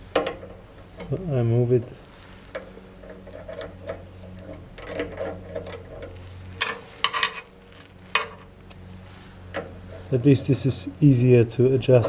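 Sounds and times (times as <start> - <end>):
steady low hum: 0.0 - 12.0
metal clicks and rubbing: 2.5 - 8.8.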